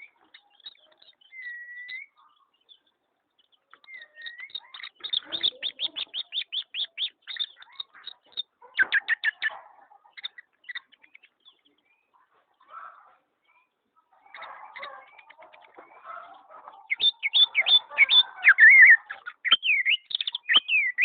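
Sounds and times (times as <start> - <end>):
pet bird making sharp sounds: 3.9 - 11.4, 12.8 - 21.0.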